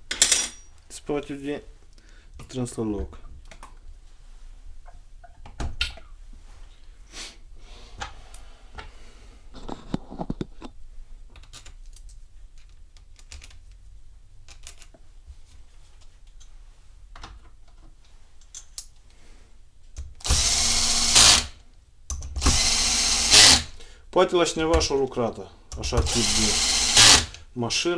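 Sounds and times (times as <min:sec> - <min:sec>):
faint clicks of handled parts: 0:09.6 - 0:13.8, 0:14.4 - 0:16.6, 0:17.2 - 0:19.2
power drill driving a screw: 0:20.2 - 0:21.6, 0:22.4 - 0:23.8, 0:26.1 - 0:27.4.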